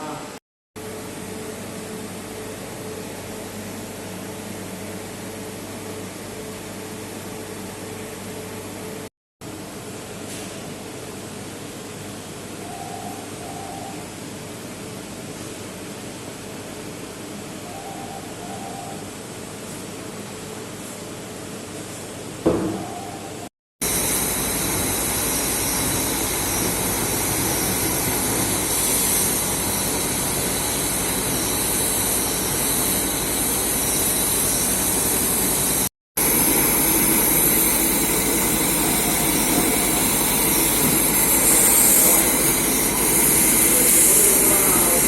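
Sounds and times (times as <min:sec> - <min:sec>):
machine hissing: 0:23.8 - 0:45.0.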